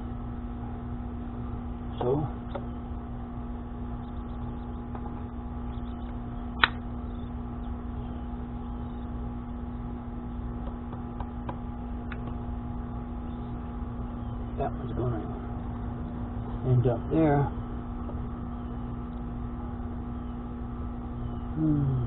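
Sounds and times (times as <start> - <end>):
low background hum: 0.0 - 22.0
sharp click: 6.0 - 6.8.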